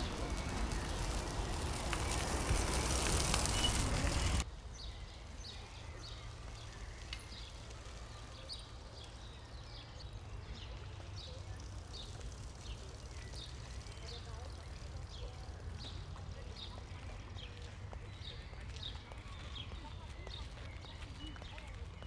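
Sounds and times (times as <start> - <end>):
bird chirping: 0.0 - 22.0.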